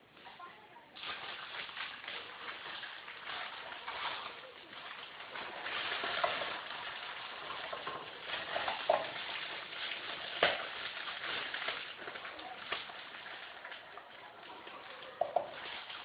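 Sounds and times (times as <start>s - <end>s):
chicken sizzling in a frying pan: 1.0s - 15.7s.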